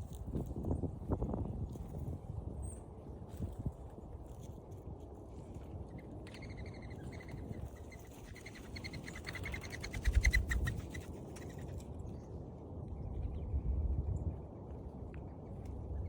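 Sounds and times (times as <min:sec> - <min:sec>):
low rumble of wind: 0:00.0 - 0:16.0
dove wings whistling: 0:06.3 - 0:11.8.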